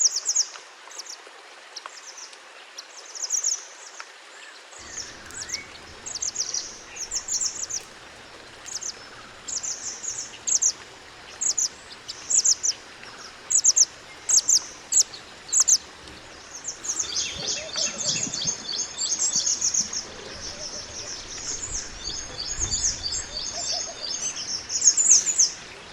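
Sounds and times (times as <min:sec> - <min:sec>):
songbird chirping and twittering: 0:01.8 - 0:25.9
steady hiss: 0:04.7 - 0:25.9.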